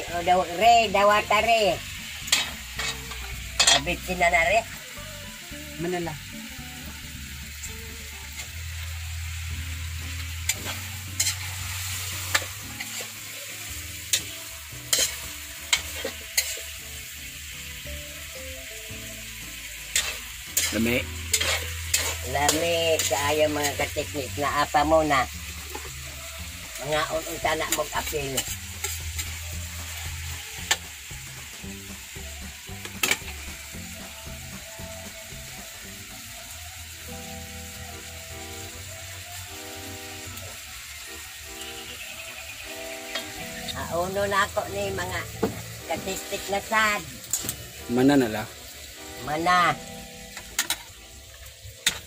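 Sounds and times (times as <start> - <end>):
faint background music: 0.0 - 52.0
squid sizzling in a wok: 0.0 - 52.0
metal spatula scraping a pan: 2.3 - 4.0, 10.2 - 17.1, 19.9 - 24.1, 26.8 - 30.8.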